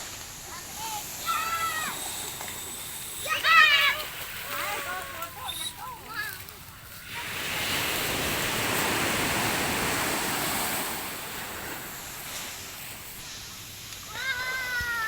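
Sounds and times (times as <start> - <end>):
wave breaking on sand: 7.0 - 13.5.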